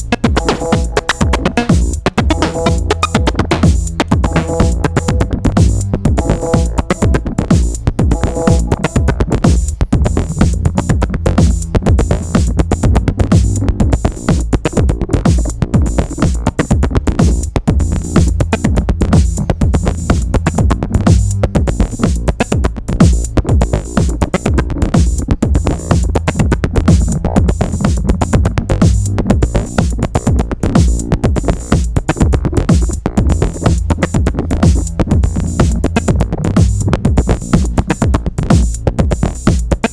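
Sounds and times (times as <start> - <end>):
granular sampled textures: 0.0 - 14.3, 32.4 - 39.5
fast drum machine percussion: 0.0 - 39.9
synthesizer bassline: 0.0 - 39.9.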